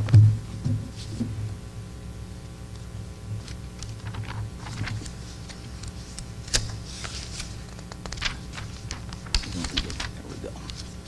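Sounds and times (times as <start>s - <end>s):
low room hum: 0.0s - 11.0s
pages rustling: 3.4s - 11.0s
page swishing: 3.9s - 11.0s.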